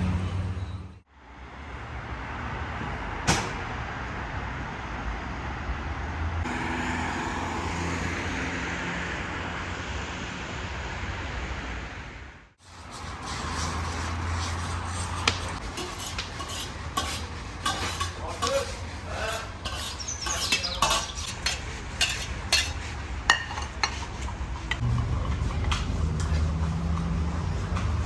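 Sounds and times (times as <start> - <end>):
metal utensils clinking on dishes: 15.2 - 26.5.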